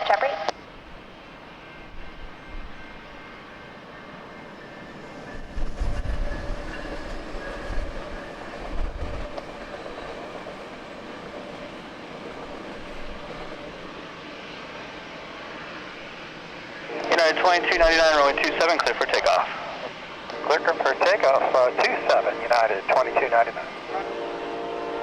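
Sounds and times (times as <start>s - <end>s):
jet airliner engines rumbling: 0.0s - 25.0s
wind buffeting microphone: 4.8s - 14.0s.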